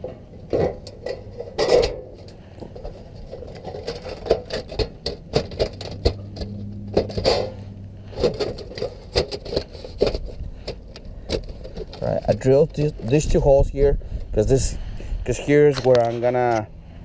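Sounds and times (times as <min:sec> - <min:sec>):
sheet metal knocks and scrapes: 0:00.0 - 0:13.0
low steady hum: 0:00.0 - 0:17.0.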